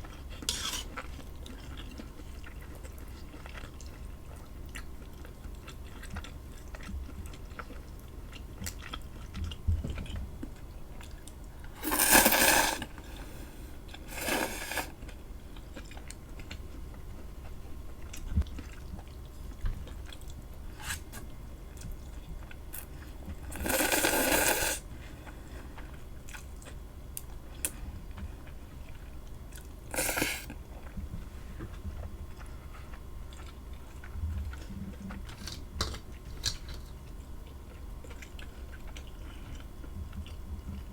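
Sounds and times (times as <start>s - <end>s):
soft chewing clicks: 0.0s - 11.8s, 15.0s - 23.5s, 25.2s - 29.8s, 30.5s - 40.9s
loud crunches of food: 11.8s - 13.0s.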